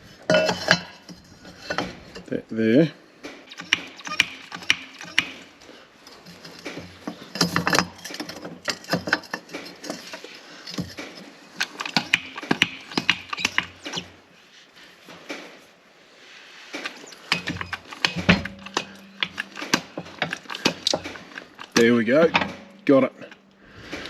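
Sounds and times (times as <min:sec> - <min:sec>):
hand tools clicking on steel: 0:03.5 - 0:14.1, 0:16.8 - 0:23.6.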